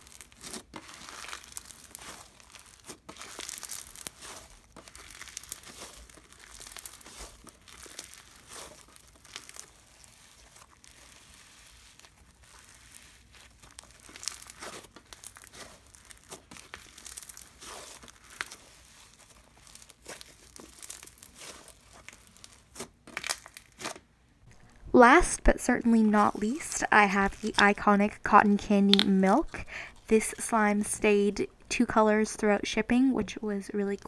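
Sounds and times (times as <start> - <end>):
slime squished with crackles: 0.0 - 31.0.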